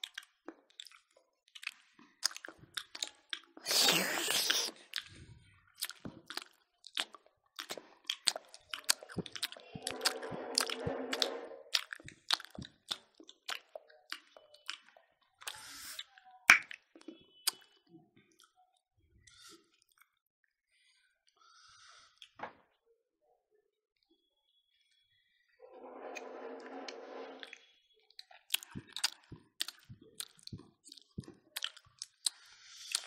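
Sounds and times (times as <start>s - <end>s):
people chewing and lip-smacking: 0.0s - 20.2s, 27.5s - 33.0s.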